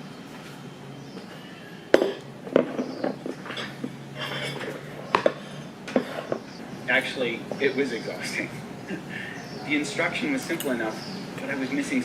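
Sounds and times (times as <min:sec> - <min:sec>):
faint voices: 0:01.2 - 0:12.0
objects being handled: 0:02.0 - 0:06.6.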